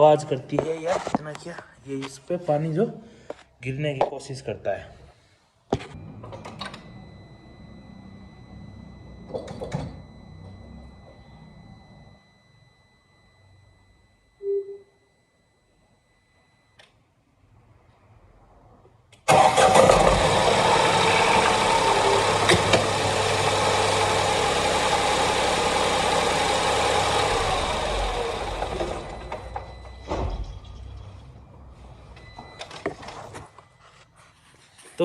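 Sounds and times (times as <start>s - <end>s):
car engine cranking and starting: 6.0s - 9.3s, 19.3s - 30.8s
car engine idling: 19.3s - 29.7s.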